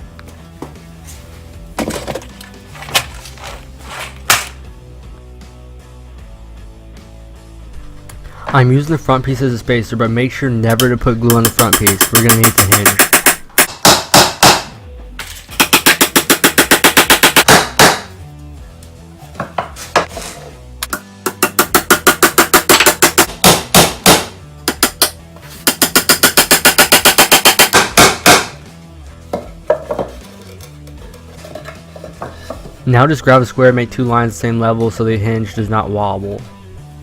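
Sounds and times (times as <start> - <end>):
background music: 0.0 - 37.0
hammer driving nails into wood: 4.3 - 4.6, 11.3 - 14.7, 15.5 - 18.2, 20.8 - 28.6.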